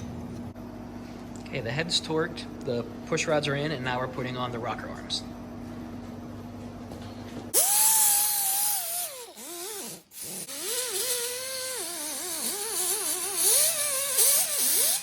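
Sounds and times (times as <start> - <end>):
rotary tool whining: 7.6 - 15.0.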